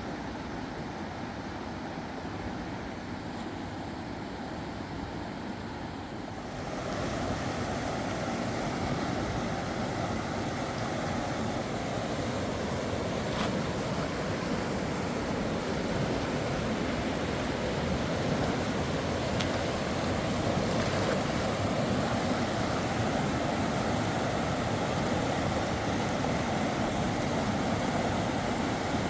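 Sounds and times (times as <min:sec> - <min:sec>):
river water rushing: 0:06.2 - 0:29.0.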